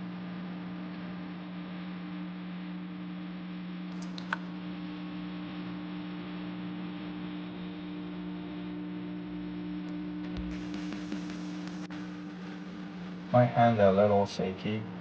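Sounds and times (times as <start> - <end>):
low electrical hum: 0.0 - 15.0
small sharp click: 3.9 - 4.5
soft hiss: 9.9 - 15.0.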